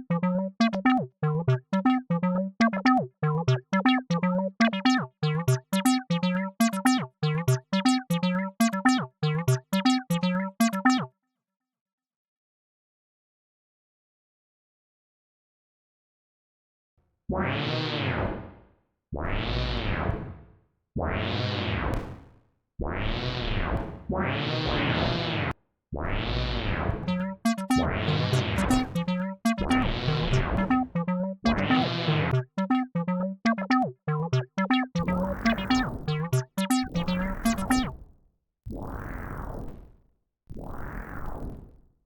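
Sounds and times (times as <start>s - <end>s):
acid synth bass notes: 0.0s - 11.1s, 26.3s - 38.0s.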